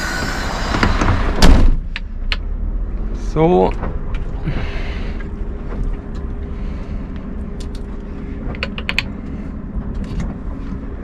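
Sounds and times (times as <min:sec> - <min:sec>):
diesel truck engine idling: 0:00.0 - 0:11.0
sharp clicks and creaks: 0:01.9 - 0:03.0, 0:07.1 - 0:10.4.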